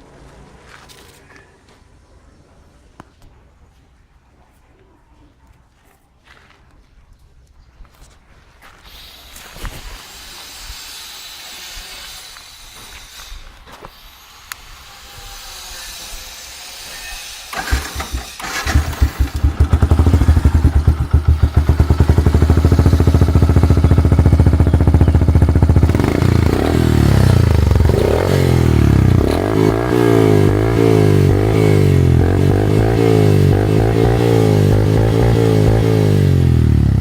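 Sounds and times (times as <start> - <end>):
engine throttle blips: 17.5 - 37.0
motorcycle engine starting: 17.5 - 37.0
motorcycle engine idling: 17.6 - 37.0.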